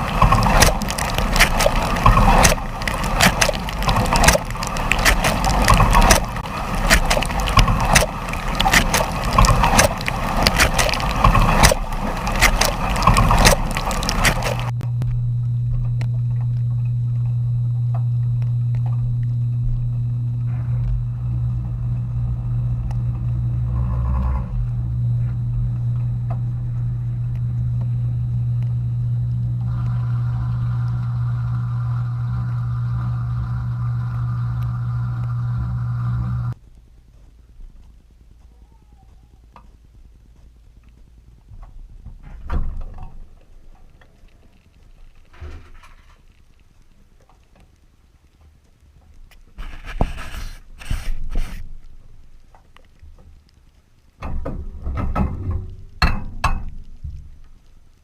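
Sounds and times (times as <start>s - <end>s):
dishwasher water spraying: 0.0s - 14.7s
higher-pitched hum: 0.0s - 36.6s
low motor hum: 0.0s - 45.8s.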